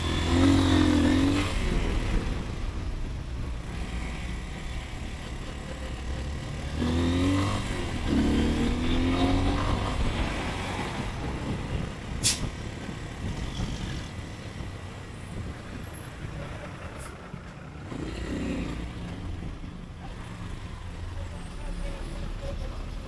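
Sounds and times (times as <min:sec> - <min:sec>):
motorcycle rumble in traffic: 0:00.0 - 0:23.0
sharp hiss: 0:12.2 - 0:12.5.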